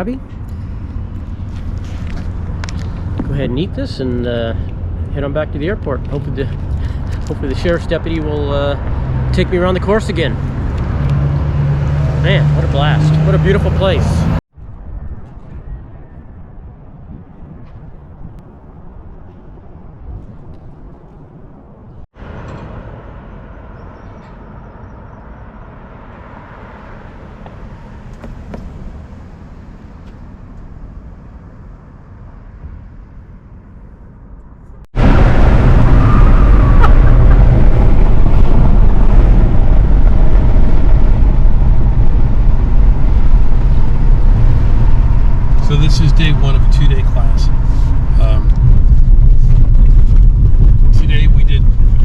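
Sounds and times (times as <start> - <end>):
car engine rumbling: 0.0 - 15.1, 17.0 - 52.0
vehicle and outdoor noise: 0.0 - 52.0.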